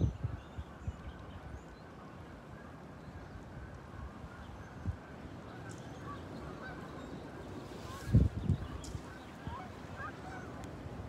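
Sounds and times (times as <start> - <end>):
outdoor background noise: 0.0 - 11.0
faint bird calls: 4.1 - 10.9.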